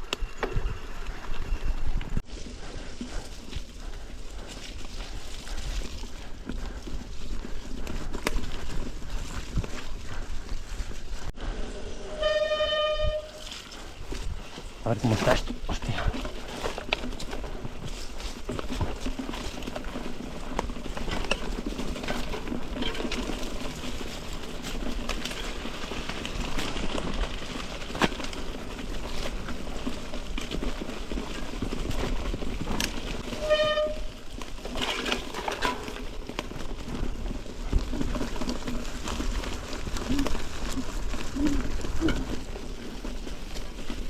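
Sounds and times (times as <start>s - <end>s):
bike rattling and knocking: 0.0s - 11.3s, 12.2s - 44.0s
tyre and wind noise: 0.0s - 44.0s.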